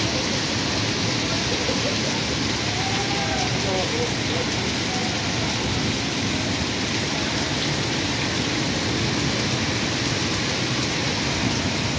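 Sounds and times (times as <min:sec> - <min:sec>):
heavy rain on a street: 0:00.0 - 0:11.9.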